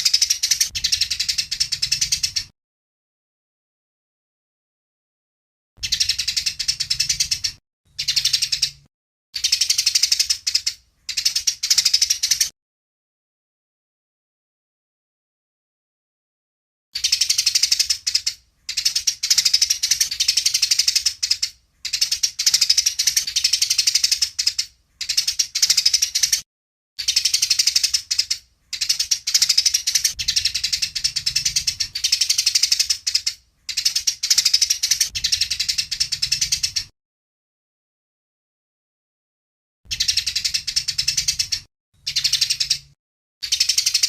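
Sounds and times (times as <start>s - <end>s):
sparrows chattering: 0.0s - 2.5s, 5.8s - 12.5s, 17.0s - 26.4s, 27.0s - 36.9s, 39.9s - 44.0s.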